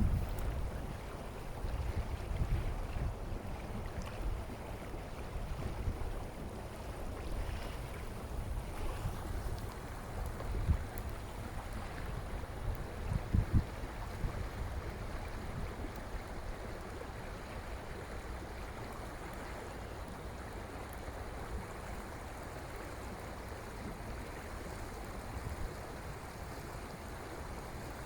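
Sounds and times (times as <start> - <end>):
wind buffeting microphone: 0.0 - 17.0
flowing water rushing: 0.0 - 28.0.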